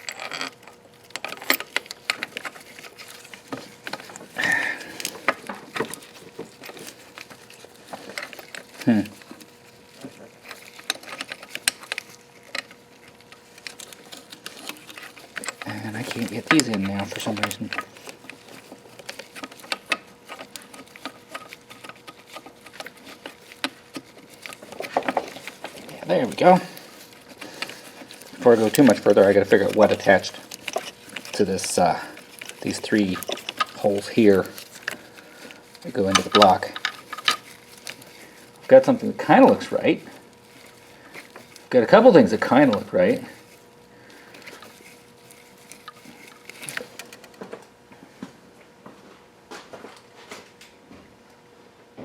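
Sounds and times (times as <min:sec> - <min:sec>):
bolts and parts clicking: 0:00.0 - 0:04.4, 0:05.0 - 0:35.0, 0:35.7 - 0:38.0
metal tools clinking: 0:00.0 - 0:09.4, 0:13.6 - 0:35.0, 0:35.7 - 0:37.5.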